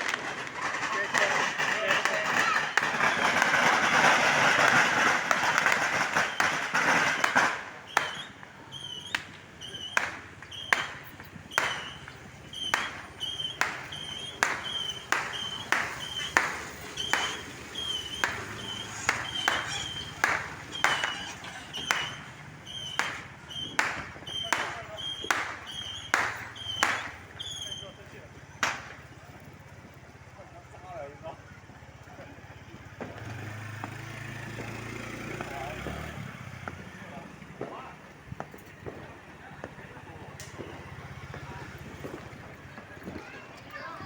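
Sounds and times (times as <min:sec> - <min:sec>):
fireworks bangs: 0:00.0 - 0:30.8, 0:31.7 - 0:44.0
fireworks crackling: 0:00.0 - 0:44.0
high whistle: 0:07.8 - 0:28.0.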